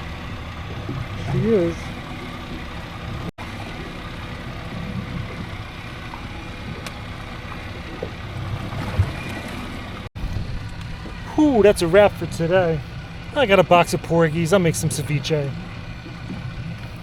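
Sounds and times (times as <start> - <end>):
outboard motor running: 0.0 - 17.0
water noise: 0.0 - 17.0
wind: 0.0 - 17.0.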